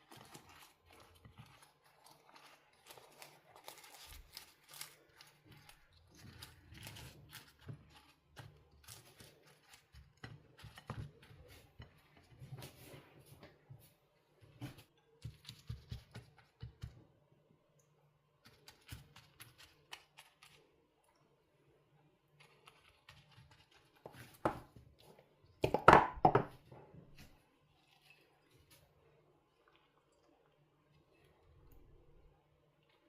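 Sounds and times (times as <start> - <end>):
objects knocking and clicking: 25.6 - 26.8.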